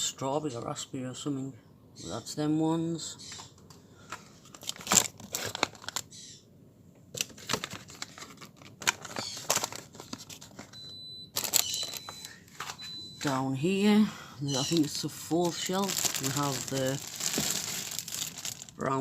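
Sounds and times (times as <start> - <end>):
plastic packaging crinkling: 4.4 - 6.2, 7.1 - 12.9, 14.5 - 19.0.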